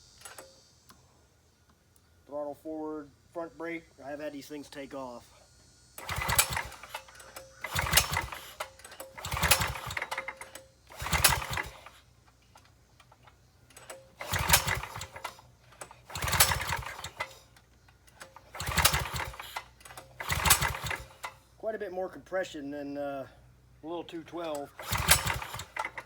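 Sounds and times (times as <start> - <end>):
engine pull-start cranking: 0.1 - 0.6, 6.0 - 21.5, 24.2 - 26.0.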